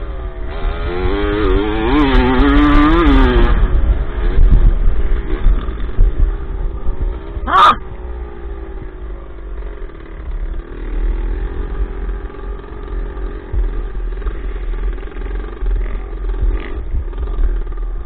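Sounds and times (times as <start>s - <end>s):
dirt bike engine: 0.0s - 18.0s
wind buffeting microphone: 2.1s - 7.5s, 15.6s - 18.0s.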